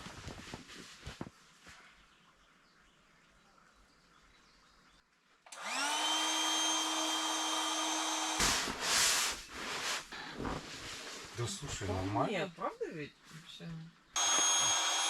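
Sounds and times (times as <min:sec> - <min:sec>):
electric blower motor whine: 0:05.5 - 0:08.8, 0:14.2 - 0:15.0.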